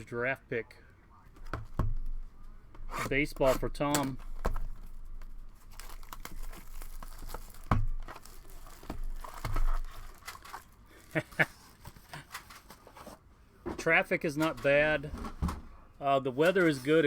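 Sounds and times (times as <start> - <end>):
plastic wrapping crinkling and tearing: 4.0 - 12.8.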